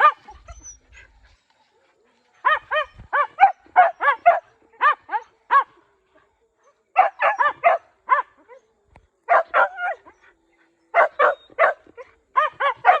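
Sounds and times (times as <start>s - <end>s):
hunting dog yelping: 0.0s - 1.2s, 2.4s - 5.7s, 7.0s - 8.6s, 9.3s - 10.3s, 10.9s - 13.0s.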